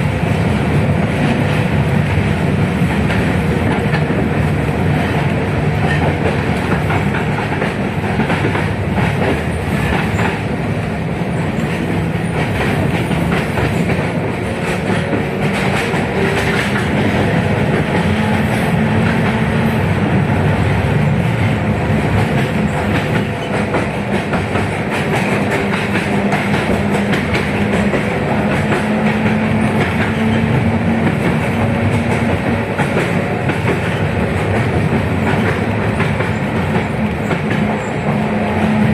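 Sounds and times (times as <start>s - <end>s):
tram wheels on rails: 0.0s - 38.9s.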